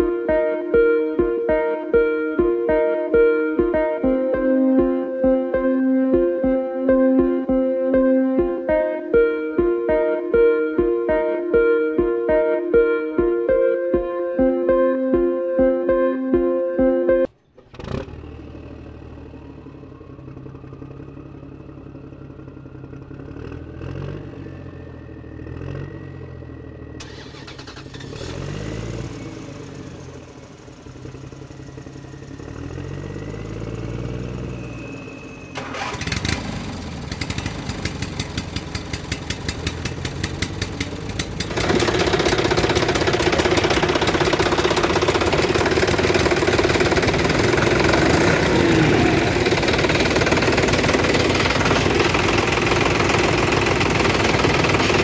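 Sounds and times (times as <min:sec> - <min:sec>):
motor engine revving and idling: 0:17.6 - 0:55.0.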